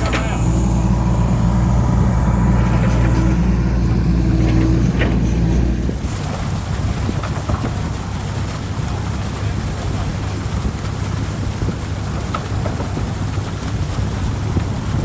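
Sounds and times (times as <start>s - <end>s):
steady rushing noise: 0.0s - 6.6s
excavator diesel engine running: 0.0s - 7.6s.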